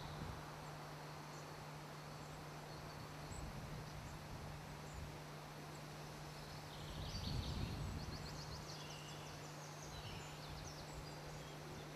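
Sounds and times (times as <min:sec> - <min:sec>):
low steady hum: 0:00.0 - 0:11.9
bird chirping: 0:05.7 - 0:11.9.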